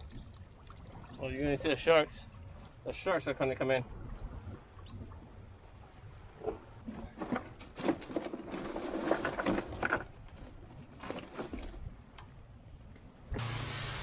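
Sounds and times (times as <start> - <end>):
steady hiss: 13.4 - 14.0.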